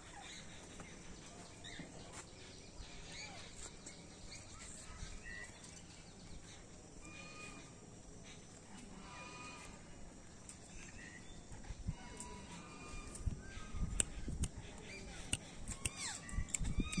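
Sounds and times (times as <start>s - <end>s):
steady background noise: 0.0s - 17.0s
birds chirping: 10.2s - 17.0s.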